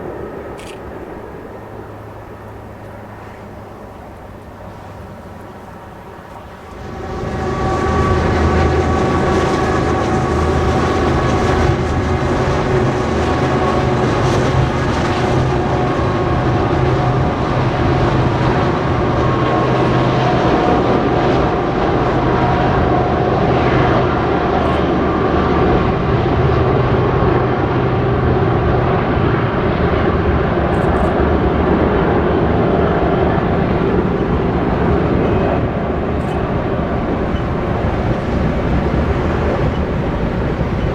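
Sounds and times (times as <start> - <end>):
train cars rumbling on rails: 0.0 - 40.9.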